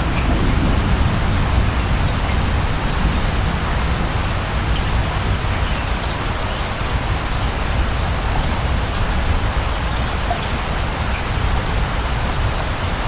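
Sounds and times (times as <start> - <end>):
distant thunder roll: 0.0 - 4.2
heavy rain: 0.0 - 13.0.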